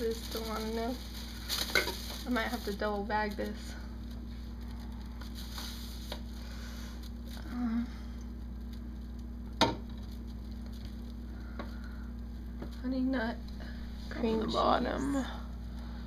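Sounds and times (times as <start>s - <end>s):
plastic trash bag rustling: 0.0s - 7.5s, 9.8s - 11.2s
steady low hum: 0.0s - 16.0s.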